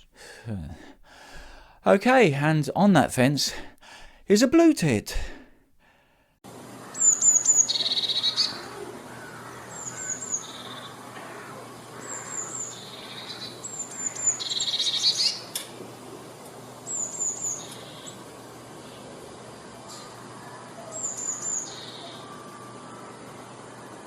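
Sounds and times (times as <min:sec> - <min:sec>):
bird singing: 0:06.8 - 0:15.6, 0:16.8 - 0:19.1, 0:19.9 - 0:23.6.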